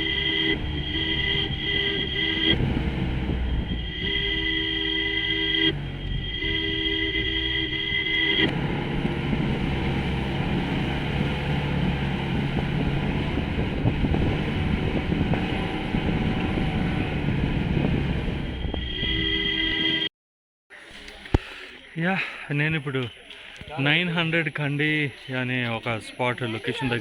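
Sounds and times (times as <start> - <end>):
off-road vehicle engine rumbling: 0.0 - 20.1
two-tone vehicle horn: 0.0 - 20.1.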